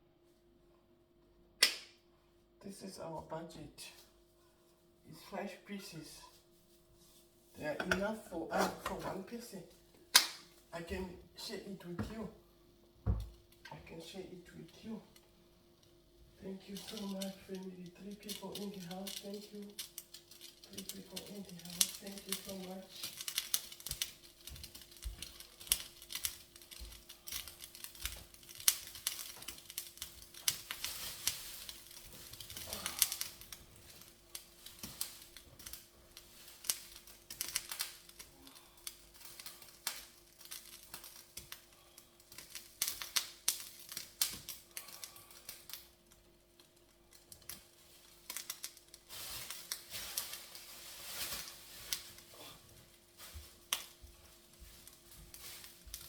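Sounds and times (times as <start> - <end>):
faint steady hum: 0.0 - 56.0
rustling: 15.8 - 56.0.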